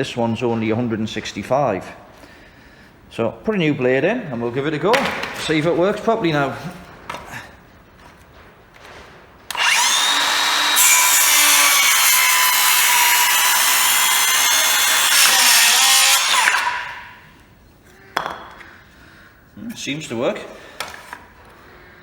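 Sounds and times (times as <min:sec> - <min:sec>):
circular saw cutting wood: 0:09.5 - 0:17.2.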